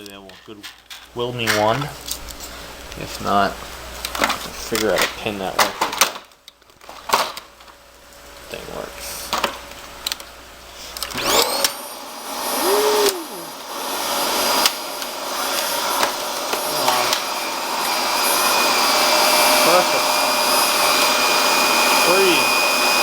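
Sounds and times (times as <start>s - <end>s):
vacuum cleaner motor whining: 10.9s - 23.0s.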